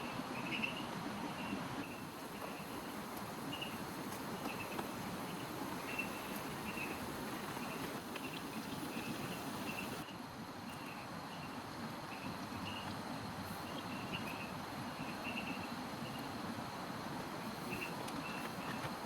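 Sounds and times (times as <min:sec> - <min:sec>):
steady rain falling: 0:02.0 - 0:10.0.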